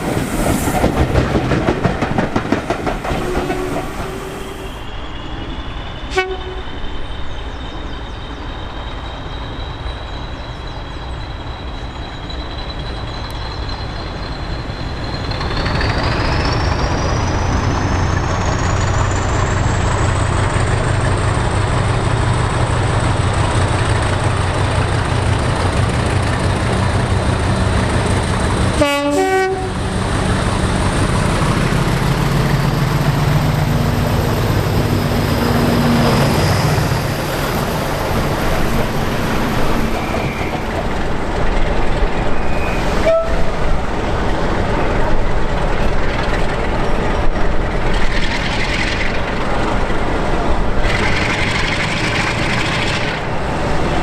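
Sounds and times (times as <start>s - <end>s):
diesel locomotive engine drone: 0.0s - 54.0s
train horn toot: 3.2s - 4.7s, 6.1s - 6.8s, 28.7s - 29.9s, 42.5s - 43.6s.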